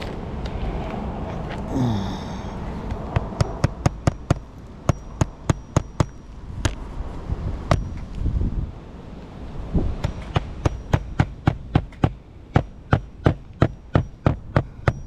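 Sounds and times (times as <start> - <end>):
hammer striking nail: 10.0 - 15.0.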